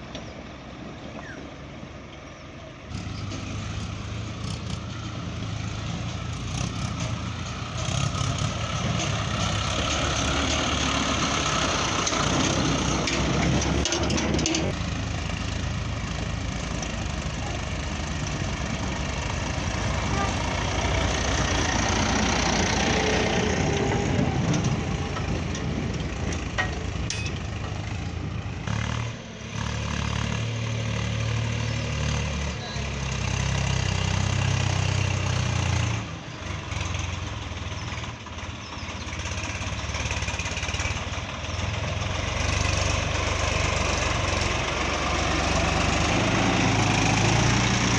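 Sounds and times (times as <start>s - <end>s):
diesel tractor engine running: 0.0s - 47.9s.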